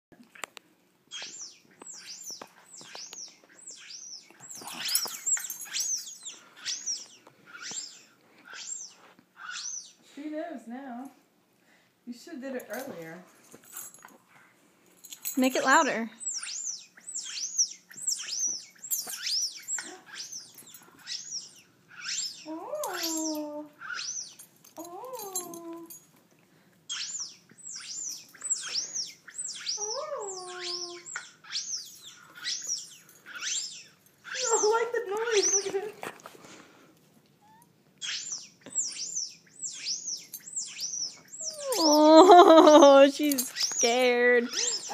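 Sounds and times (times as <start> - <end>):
squeaky chirps from phone speaker: 1.1 - 10.0, 16.2 - 24.5, 26.9 - 35.7, 37.4 - 42.0, 43.4 - 44.9.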